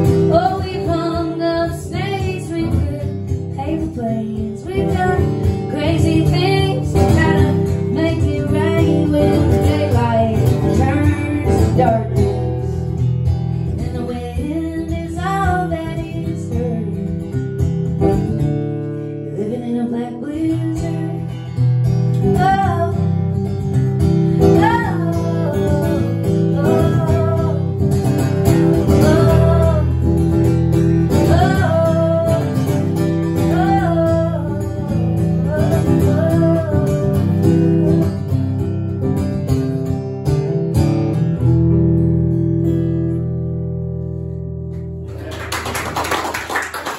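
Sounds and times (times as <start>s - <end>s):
woman singing: 0.0s - 12.9s, 13.7s - 17.4s, 19.2s - 38.4s
acoustic guitar strumming: 0.0s - 45.2s.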